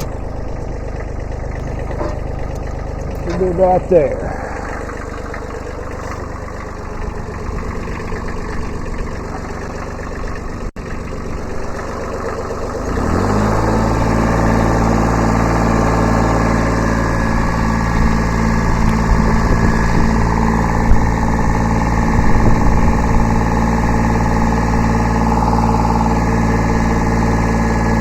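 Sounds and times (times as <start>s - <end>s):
tractor diesel engine revving: 0.0s - 28.0s.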